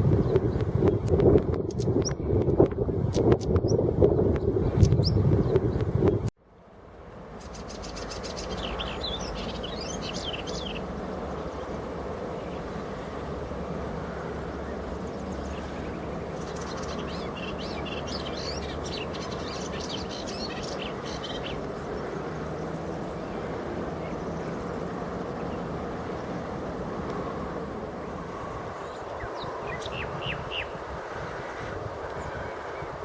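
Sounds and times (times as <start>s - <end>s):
small birds chirping: 7.4s - 12.7s, 14.6s - 25.7s.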